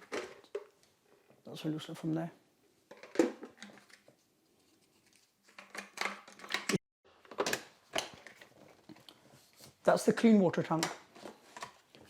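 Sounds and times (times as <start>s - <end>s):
plastic vacuum parts clicking: 5.6s - 9.2s.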